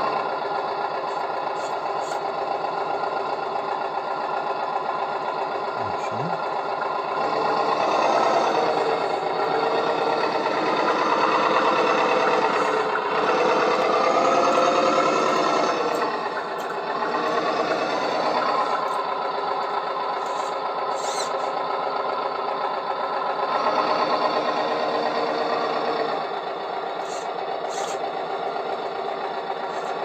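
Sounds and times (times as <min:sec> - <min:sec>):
small motors buzzing: 0:20.1 - 0:21.5, 0:27.0 - 0:28.2.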